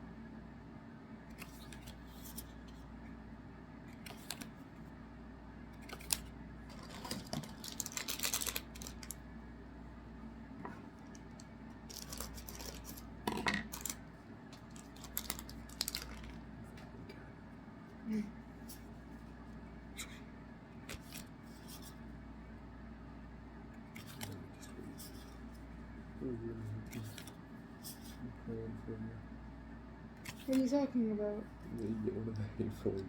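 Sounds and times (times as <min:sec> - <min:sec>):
cards clicking and sliding: 0:01.3 - 0:02.8, 0:03.9 - 0:04.6, 0:05.8 - 0:09.2, 0:20.8 - 0:22.0, 0:23.9 - 0:25.4, 0:26.9 - 0:28.2, 0:30.2 - 0:30.7
pack wrappers crinkling: 0:05.8 - 0:09.2, 0:11.9 - 0:14.0, 0:14.6 - 0:16.4.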